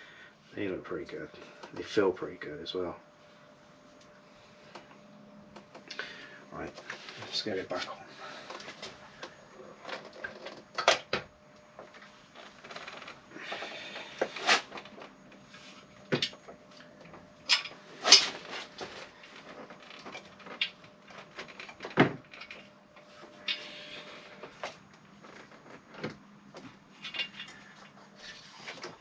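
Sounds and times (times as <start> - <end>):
metal parts clunking: 17.5 - 18.5, 27.0 - 27.7.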